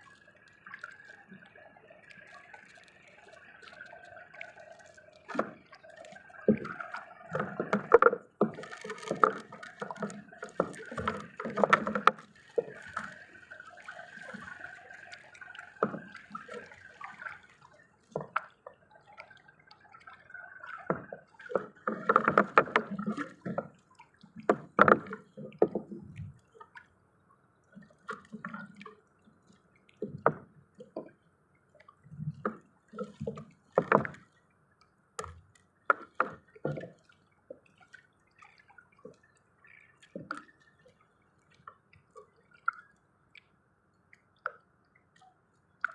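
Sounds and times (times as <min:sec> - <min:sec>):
water splashing and dripping: 0:00.0 - 0:27.0, 0:27.7 - 0:43.5.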